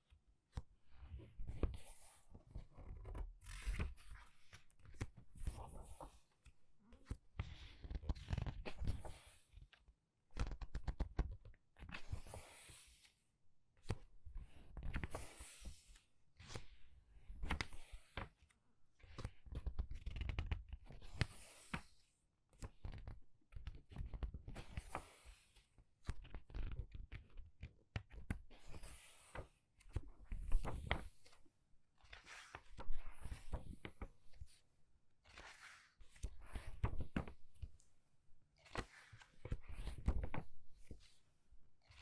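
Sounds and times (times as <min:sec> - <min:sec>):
book pages turning: 0:02.8 - 0:06.2, 0:35.2 - 0:37.8, 0:38.6 - 0:41.2.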